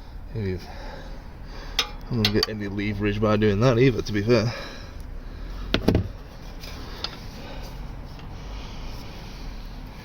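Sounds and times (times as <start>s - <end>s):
rubbing and scraping on oil filter: 5.4s - 10.0s.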